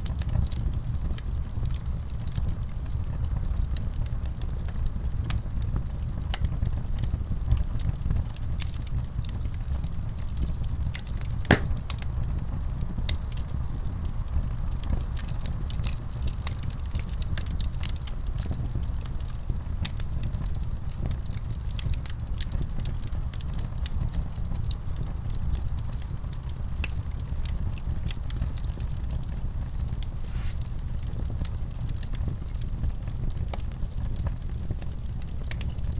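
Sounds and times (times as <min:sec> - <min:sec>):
wood fire crackling and popping: 0:05.1 - 0:14.1, 0:14.8 - 0:35.9.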